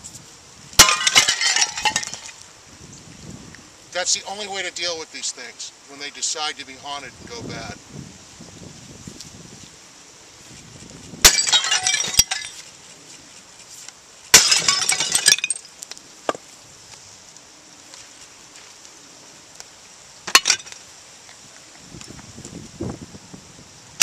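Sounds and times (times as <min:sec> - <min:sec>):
porcelain shattering and clinking: 0:00.8 - 0:02.4, 0:11.2 - 0:12.6, 0:14.4 - 0:15.7, 0:20.3 - 0:20.8.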